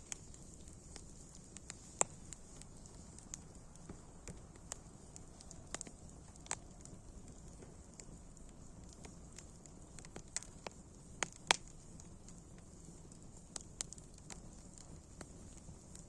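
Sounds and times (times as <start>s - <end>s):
low rumble of burning: 0.0s - 16.0s
wood fire popping: 0.0s - 16.0s.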